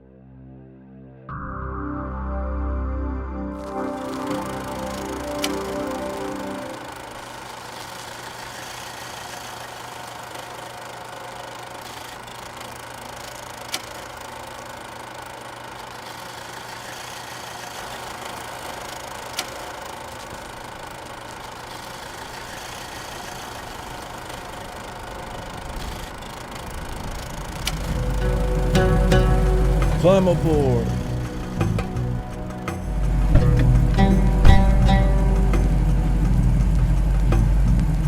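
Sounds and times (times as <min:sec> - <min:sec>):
engine running with low hum: 0:16.2 - 0:38.0.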